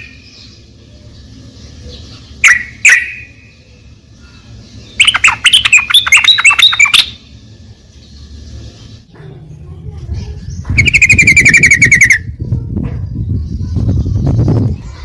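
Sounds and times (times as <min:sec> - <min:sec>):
rapid chattering birdsong: 0:00.0 - 0:15.0
bird calling: 0:01.8 - 0:07.4, 0:10.6 - 0:12.3.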